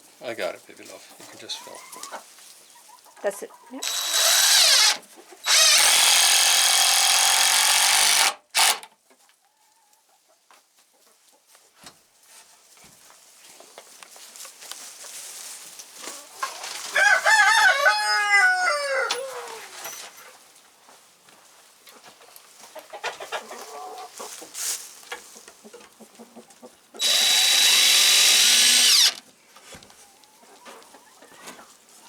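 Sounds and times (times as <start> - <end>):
chicken calling: 1.4 - 4.1, 16.2 - 19.8
power drill driving a screw: 3.8 - 8.9, 27.0 - 29.2.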